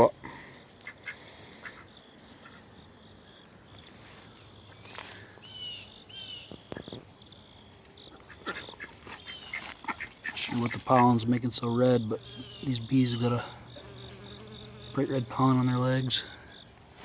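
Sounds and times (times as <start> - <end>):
crickets trilling: 0.0 - 17.0
bird chirps: 4.3 - 16.7.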